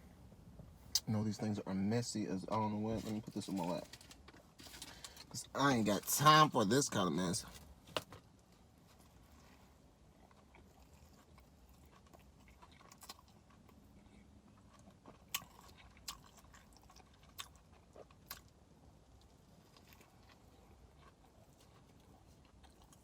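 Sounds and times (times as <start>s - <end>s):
person chewing food: 9.0s - 23.0s.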